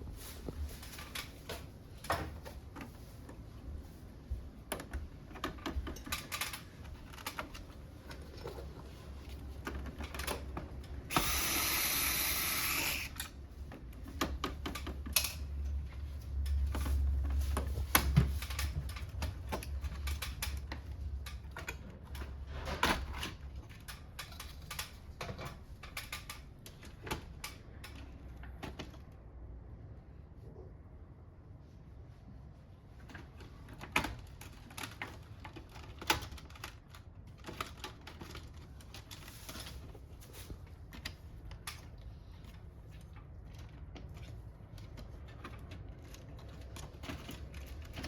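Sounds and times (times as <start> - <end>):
clicks and knocks of plastic covers: 33.1 - 48.0.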